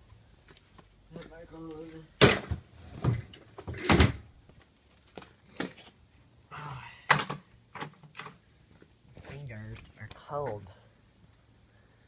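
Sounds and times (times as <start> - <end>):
knocks and clunks of parts: 2.2 - 4.2.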